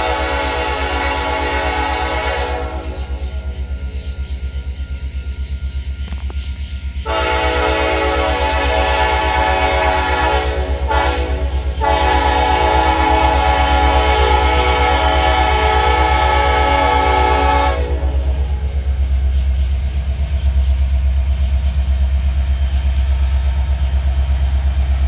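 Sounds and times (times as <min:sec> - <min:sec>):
locomotive air horn blasts: 0:00.0 - 0:03.8, 0:07.0 - 0:19.0
locomotive engine throbbing: 0:00.0 - 0:25.0.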